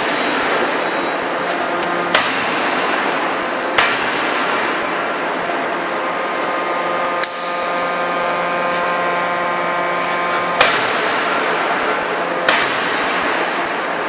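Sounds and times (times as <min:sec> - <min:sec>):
forging hammer blows: 0:00.0 - 0:14.0
machine hum: 0:00.0 - 0:14.0.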